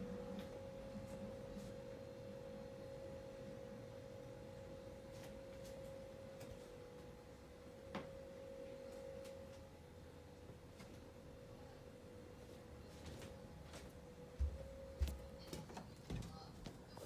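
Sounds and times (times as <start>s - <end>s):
steady single-pitched hum: 0.0s - 16.9s.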